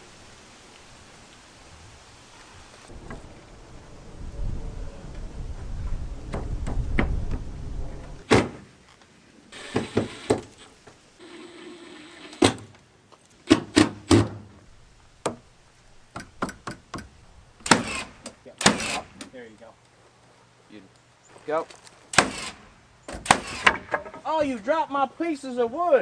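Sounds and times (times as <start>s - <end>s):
low rumble: 2.9s - 8.2s
sharp knocks on wood: 16.1s - 17.1s, 23.1s - 24.3s.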